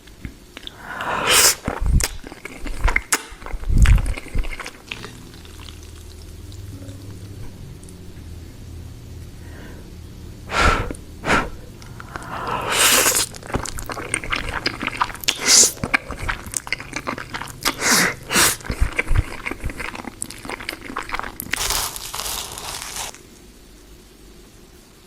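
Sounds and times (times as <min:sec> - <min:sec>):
wet chewing: 0:00.6 - 0:06.7, 0:11.8 - 0:23.2
slurping noodles: 0:00.7 - 0:06.4, 0:10.5 - 0:23.2.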